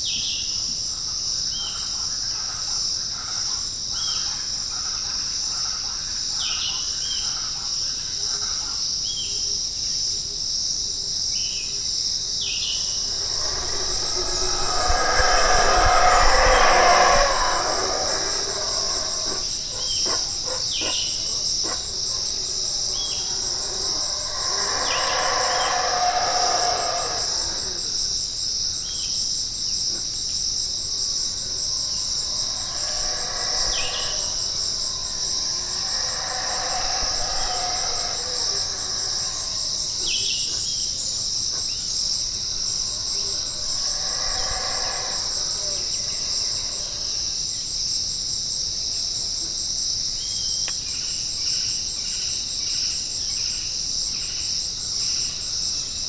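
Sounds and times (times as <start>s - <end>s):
lower insect call: 11.3s - 56.0s
insect chorus high-pitched buzz: 12.4s - 56.0s
falling chirps: 12.8s - 28.2s, 31.0s - 40.3s, 42.5s - 47.2s.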